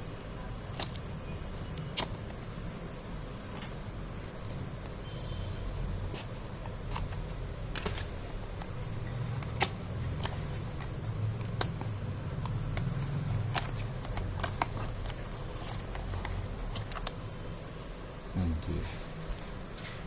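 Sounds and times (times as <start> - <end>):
low steady hum: 0.0 - 20.0
box and packaging clicks and taps: 9.4 - 17.2.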